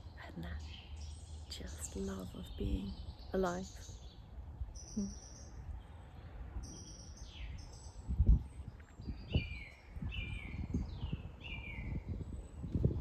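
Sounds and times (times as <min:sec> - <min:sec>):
birdsong whistled notes: 0:06.6 - 0:13.0.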